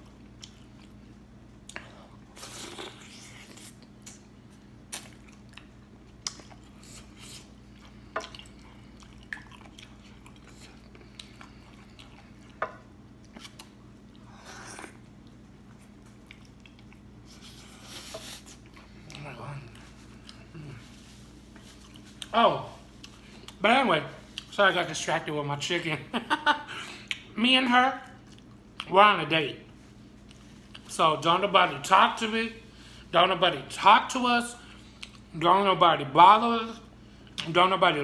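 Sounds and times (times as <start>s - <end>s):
wet chewing and smacking: 0.0s - 1.9s, 2.6s - 17.5s, 18.4s - 23.6s, 28.0s - 28.9s, 34.8s - 35.3s.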